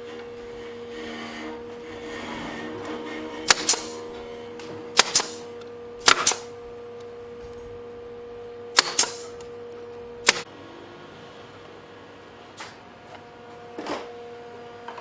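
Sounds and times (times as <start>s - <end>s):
steady hum: 0.0s - 10.5s.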